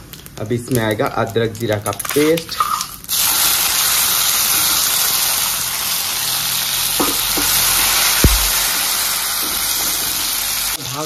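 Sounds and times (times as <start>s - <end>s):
paste sizzling in hot oil: 0.0s - 11.0s
thump: 8.2s - 8.6s.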